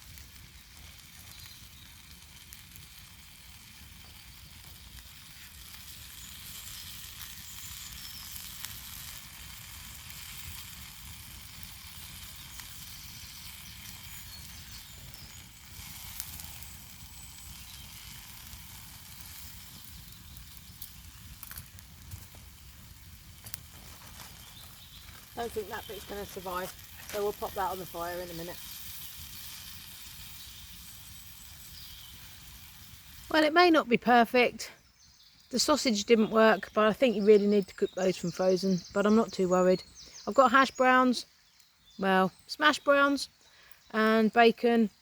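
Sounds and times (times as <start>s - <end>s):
food sizzling in a pan: 0.0s - 33.7s
fat popping and crackling: 0.0s - 34.4s.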